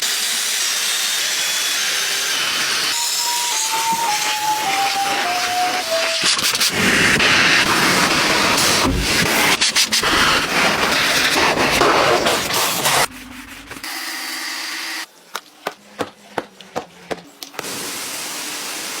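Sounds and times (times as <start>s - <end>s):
spraying water and scrubbing: 0.0s - 14.1s, 17.6s - 19.0s
machine noise: 2.8s - 15.1s.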